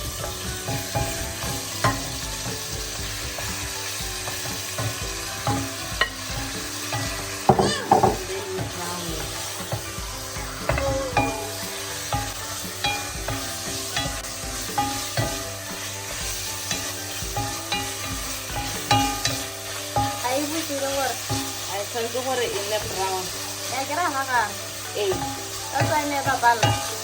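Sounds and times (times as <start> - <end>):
meat sizzling in hot oil: 0.0 - 27.0
utensil knocking against pan: 4.2 - 8.8, 10.6 - 15.5.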